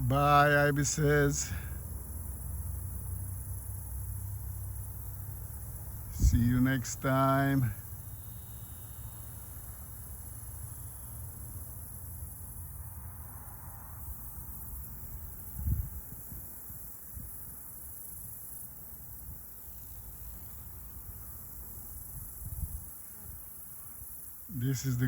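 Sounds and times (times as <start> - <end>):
high insect chirring: 0.0 - 25.0
low microphone rumble: 6.0 - 7.0.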